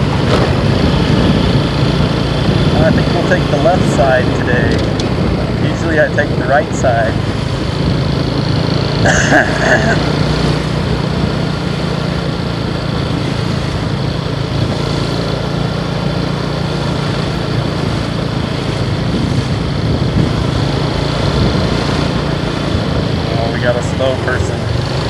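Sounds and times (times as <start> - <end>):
motorcycle engine running: 0.0 - 25.0
steady rushing noise: 0.0 - 25.0.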